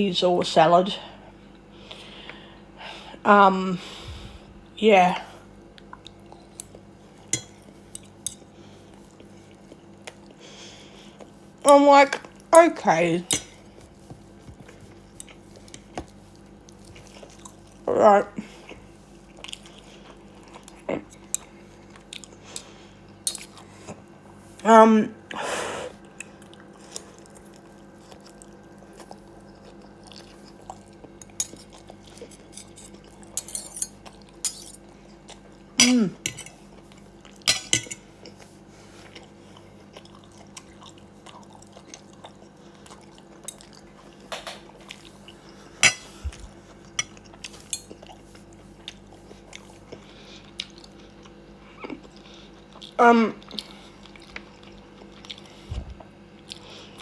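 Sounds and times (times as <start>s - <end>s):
steady low hum: 0.0s - 57.0s
person chewing: 5.7s - 12.5s, 13.4s - 24.6s, 25.9s - 57.0s.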